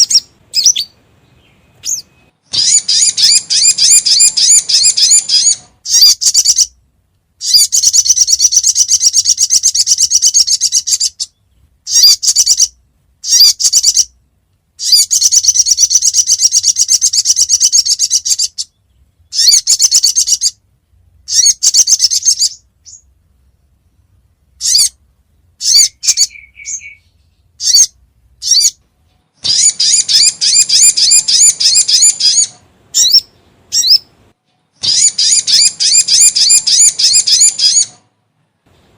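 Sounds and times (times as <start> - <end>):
short bird chirps: 0.0 - 6.7, 25.6 - 28.8
high-pitched bird trills: 0.0 - 6.8, 7.4 - 14.2, 14.8 - 20.6, 21.3 - 23.1, 24.6 - 25.0, 25.6 - 28.8, 29.4 - 34.1, 34.8 - 38.0.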